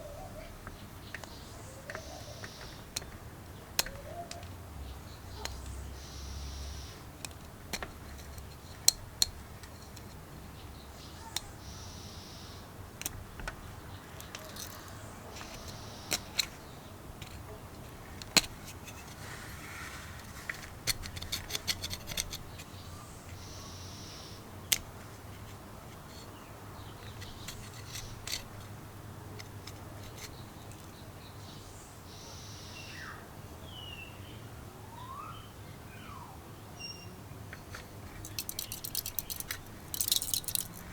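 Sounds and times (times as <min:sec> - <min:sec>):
metal parts and tools clinking: 0:14.2 - 0:16.6, 0:27.0 - 0:28.7, 0:37.7 - 0:40.9.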